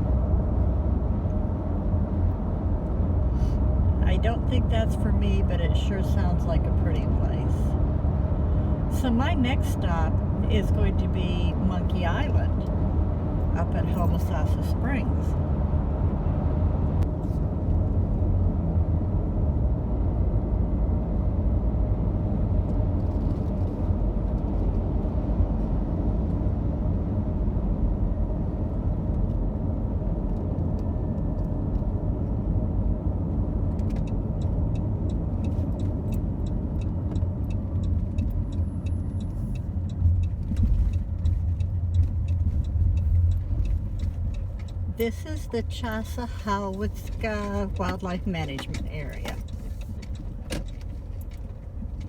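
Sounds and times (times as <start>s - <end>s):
road and engine rumble: 0.0s - 52.0s
light regular ticking: 33.7s - 52.0s.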